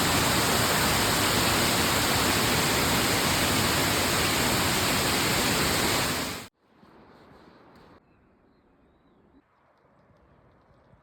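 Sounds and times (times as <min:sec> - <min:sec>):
waterfall roaring: 0:00.0 - 0:06.5.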